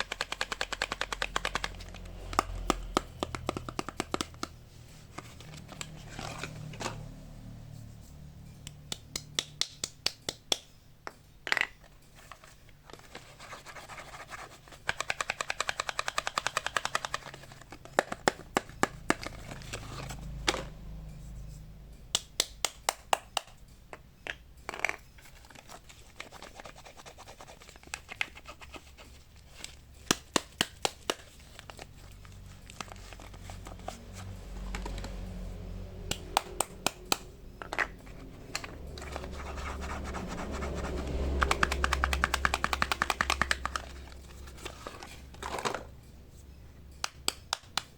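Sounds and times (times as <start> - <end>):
taps and clicks on soap bars: 0.0 - 4.6, 8.7 - 11.8, 14.8 - 19.4, 22.1 - 25.0, 30.1 - 31.4, 36.1 - 37.9, 41.4 - 44.0, 47.0 - 47.9.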